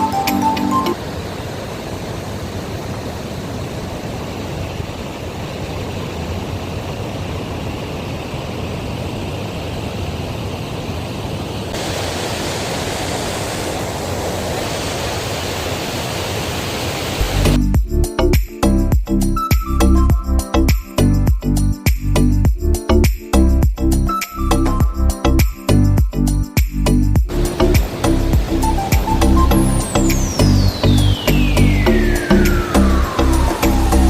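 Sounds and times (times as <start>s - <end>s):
steady rushing noise: 0.9s - 17.6s, 27.3s - 34.0s.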